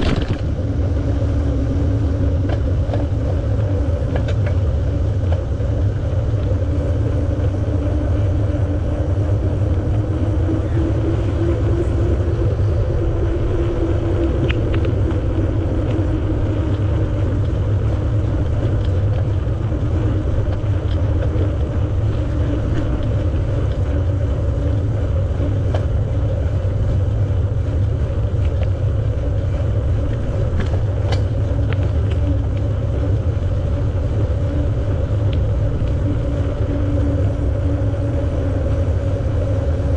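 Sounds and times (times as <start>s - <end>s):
bicycle tyres rolling: 0.0s - 39.9s
faint wavering hum: 0.0s - 39.9s
wind buffeting microphone: 0.0s - 39.9s
light ticks: 18.7s - 19.8s.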